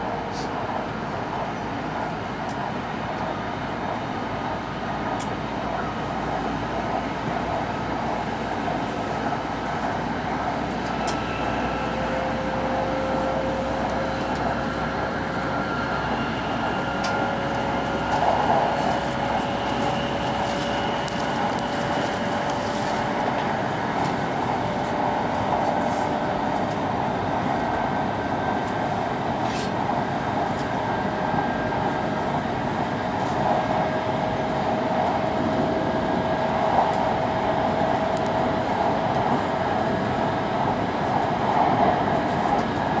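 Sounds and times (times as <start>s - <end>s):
train cabin rushing noise: 6.2s - 43.0s.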